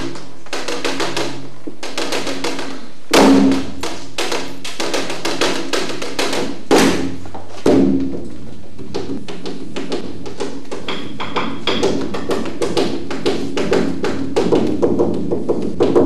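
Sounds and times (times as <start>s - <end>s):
wood block percussion strikes: 8.9s - 16.0s.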